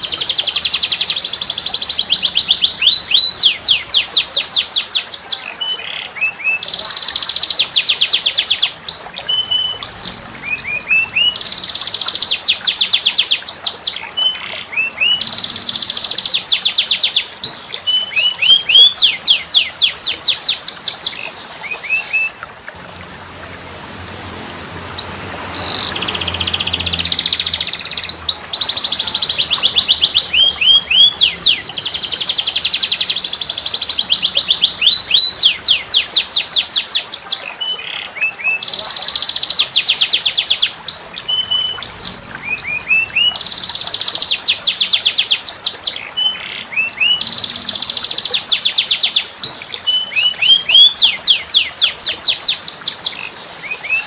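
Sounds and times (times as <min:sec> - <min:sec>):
songbird trilling and chirping: 0:00.0 - 0:22.4, 0:25.0 - 0:54.0.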